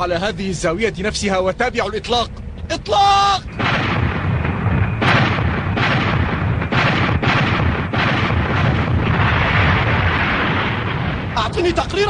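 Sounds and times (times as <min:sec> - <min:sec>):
low rumble: 0:03.4 - 0:12.0
spaceship cannon fire: 0:03.5 - 0:11.4
explosions: 0:03.5 - 0:12.0.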